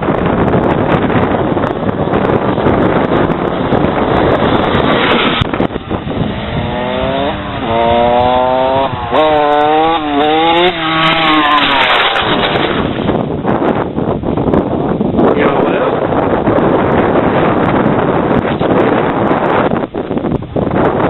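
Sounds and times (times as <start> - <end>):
wind buffeting microphone: 0.0 - 21.0
dirt bike engine revving: 2.2 - 13.2.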